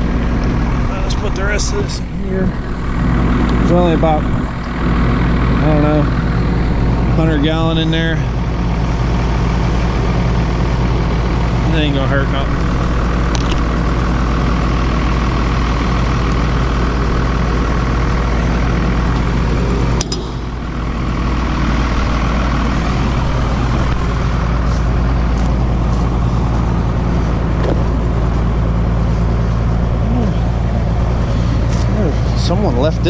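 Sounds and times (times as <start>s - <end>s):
diesel engine idling: 0.0s - 33.0s
sharp knock: 20.0s - 20.6s.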